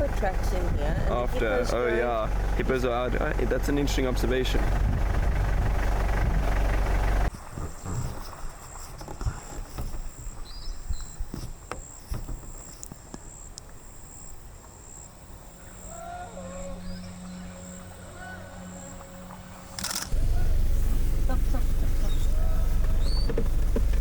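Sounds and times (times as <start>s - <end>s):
vehicle engine rumbling: 0.0s - 10.4s, 15.4s - 24.0s
bird chirp: 10.0s - 13.5s, 15.6s - 24.0s
insect trilling: 14.1s - 23.6s
sharp clicks: 19.7s - 20.2s.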